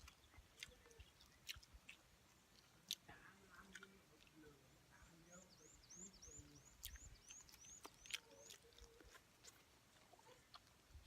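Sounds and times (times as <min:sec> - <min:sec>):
person chewing crunchy food: 0:00.0 - 0:04.4, 0:06.8 - 0:11.0.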